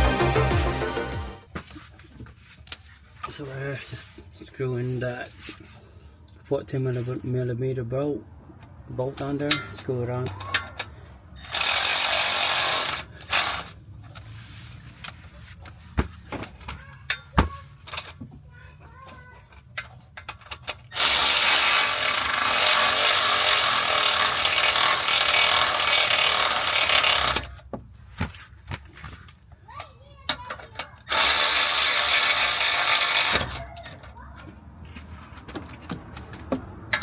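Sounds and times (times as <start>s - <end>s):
power tool running bolts: 11.4s - 13.8s, 20.9s - 27.5s, 31.1s - 33.6s.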